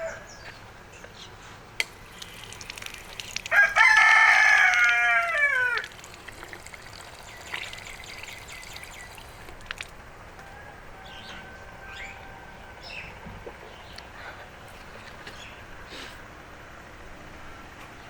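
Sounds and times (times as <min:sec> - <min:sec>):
rooster crowing: 0:00.0 - 0:00.4, 0:03.4 - 0:06.0, 0:10.4 - 0:12.9.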